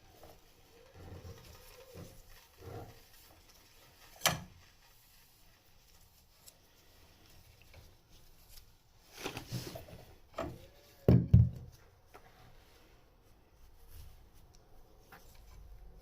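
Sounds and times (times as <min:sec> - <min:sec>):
rustle: 0:00.0 - 0:11.1
knocks and bumps: 0:11.1 - 0:11.8.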